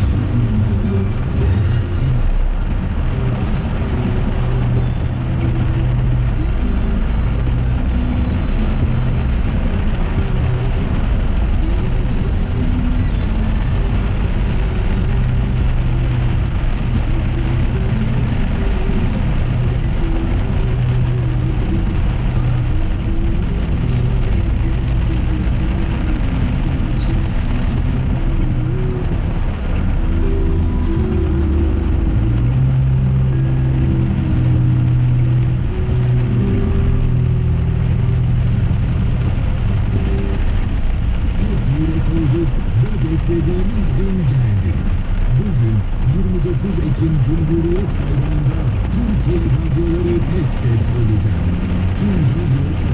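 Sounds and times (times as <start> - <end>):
radio voice: 0.0 - 2.5, 41.3 - 52.9
car engine and road noise: 0.0 - 52.9
music from car radio: 0.0 - 52.9.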